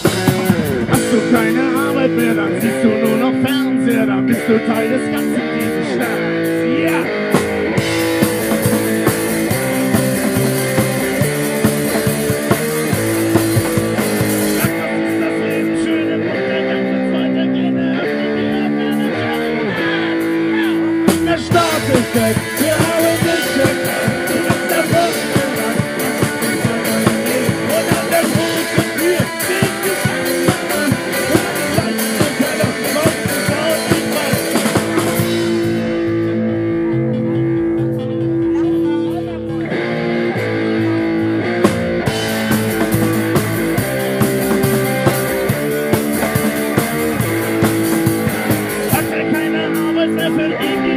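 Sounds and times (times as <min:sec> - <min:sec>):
drum kit beat: 0:00.0 - 0:16.3, 0:18.1 - 0:38.9, 0:40.4 - 0:50.9
electric guitar notes: 0:00.0 - 0:50.9
rock band playing: 0:00.0 - 0:50.9.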